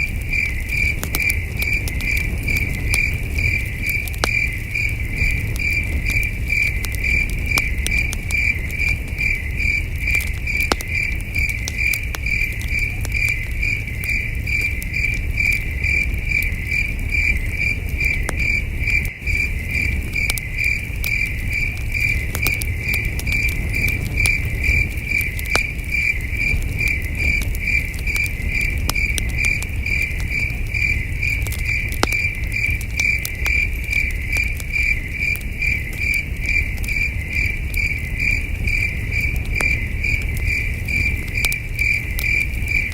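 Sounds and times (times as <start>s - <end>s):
campfire crackling and popping: 0.0s - 42.9s
crickets chirping: 0.0s - 42.9s.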